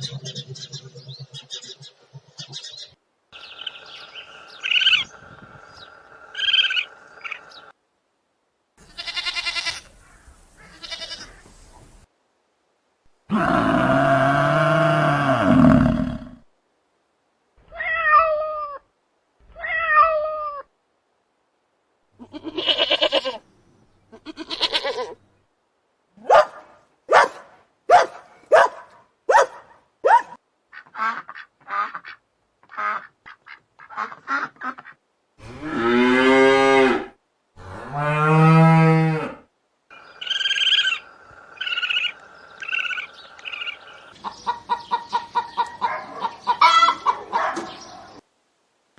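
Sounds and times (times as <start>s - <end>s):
farm animal calls: 8.8s - 11.9s, 38.6s - 47.9s.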